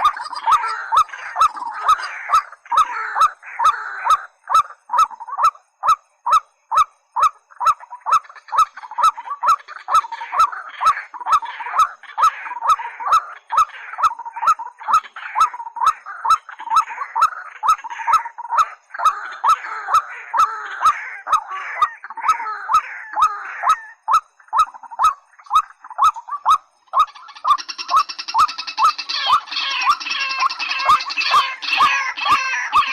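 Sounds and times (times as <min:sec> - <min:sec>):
rails calling with rising notes: 0:25.4 - 0:32.9.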